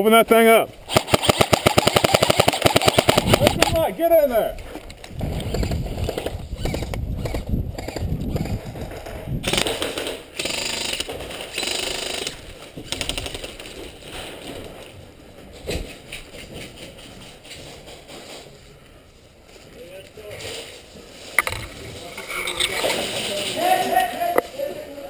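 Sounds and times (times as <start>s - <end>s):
airsoft guns firing: 0.9s - 3.9s, 9.4s - 13.6s.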